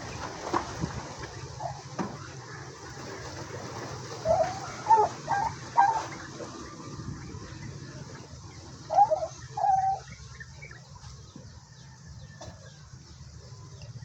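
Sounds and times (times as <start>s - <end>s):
poultry calling: 1.2s - 11.4s.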